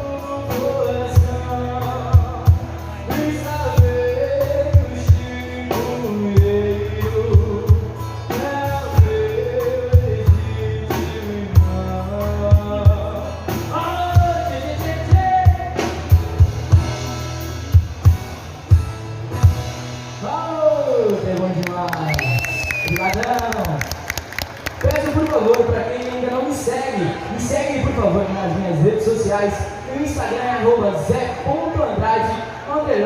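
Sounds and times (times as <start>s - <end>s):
person singing: 0.0s - 15.9s
bass: 0.0s - 33.0s.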